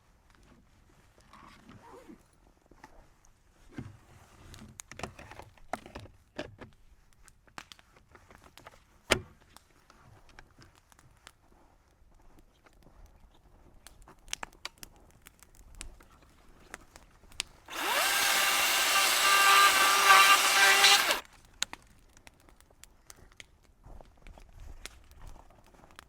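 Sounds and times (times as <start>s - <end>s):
electric power tool motor: 17.7s - 21.2s.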